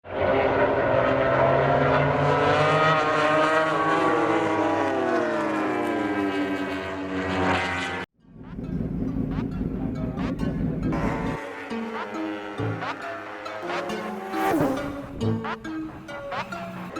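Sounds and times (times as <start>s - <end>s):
race bike engine at high revs: 0.0s - 8.1s, 10.9s - 16.9s.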